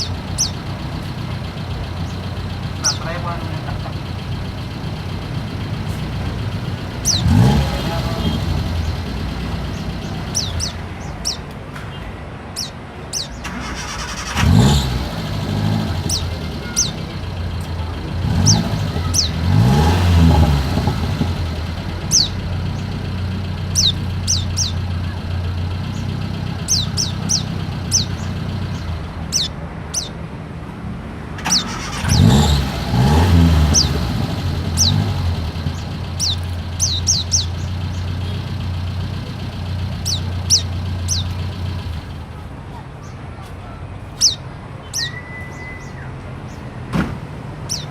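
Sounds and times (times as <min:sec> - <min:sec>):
bird giving high falling chirps: 0:00.0 - 0:11.4, 0:15.4 - 0:20.5, 0:22.0 - 0:23.0, 0:23.6 - 0:24.9, 0:25.9 - 0:30.1, 0:34.8 - 0:38.2, 0:40.0 - 0:42.0
low engine hum: 0:00.0 - 0:11.5, 0:12.6 - 0:44.4
vehicles revving past: 0:00.0 - 0:11.6, 0:12.6 - 0:43.2, 0:44.0 - 0:47.9.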